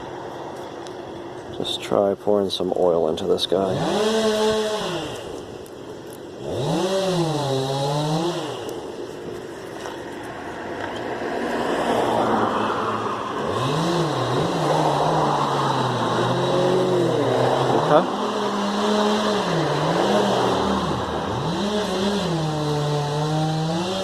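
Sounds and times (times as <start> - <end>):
vehicle engine revving: 3.5 - 5.4, 6.4 - 9.1, 11.4 - 24.0.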